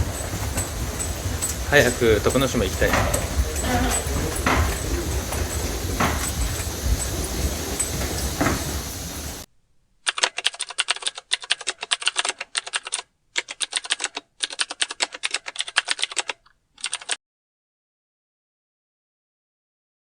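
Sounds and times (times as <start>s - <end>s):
vehicle noise: 0.0s - 9.5s
keyboard typing clicks: 10.1s - 17.2s.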